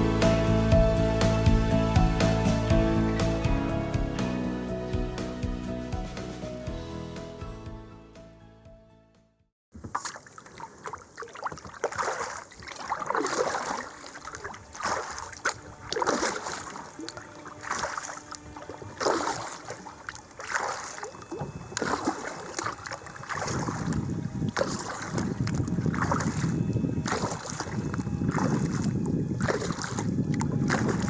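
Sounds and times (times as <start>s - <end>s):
kayak paddle strokes in water: 9.7s - 31.0s
water trickling off paddle: 9.7s - 31.0s.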